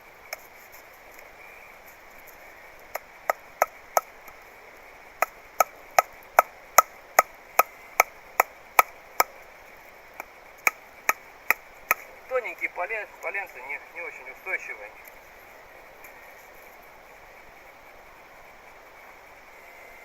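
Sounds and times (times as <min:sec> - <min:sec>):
wooden stake being hammered: 0:05.2 - 0:09.3, 0:10.2 - 0:12.1.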